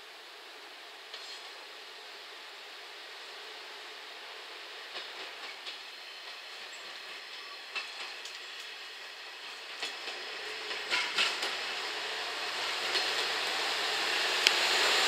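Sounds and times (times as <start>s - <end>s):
train rolling noise: 0.1s - 15.0s
train wheels clicking: 4.8s - 15.0s.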